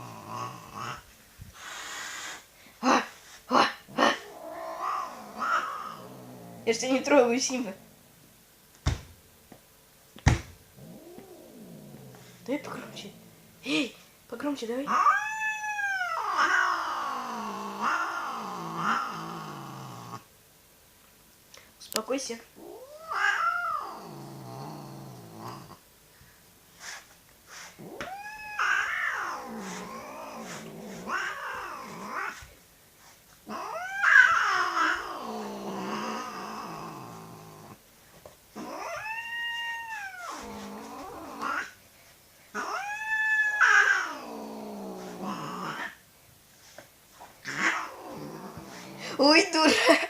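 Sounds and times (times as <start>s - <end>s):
cat growling and yowling: 0.0s - 1.0s, 3.9s - 6.8s, 10.8s - 13.4s, 14.9s - 20.2s, 22.6s - 25.8s, 27.8s - 32.4s, 33.4s - 37.8s, 38.6s - 41.8s, 42.5s - 46.0s, 47.4s - 49.3s.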